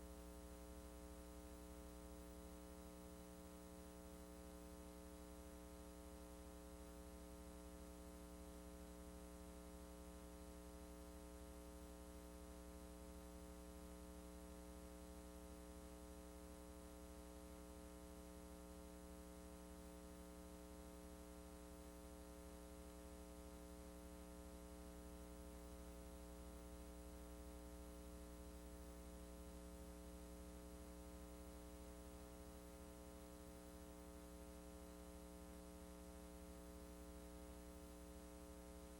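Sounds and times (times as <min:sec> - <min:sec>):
faint electrical mains hum: 0:00.0 - 0:38.9.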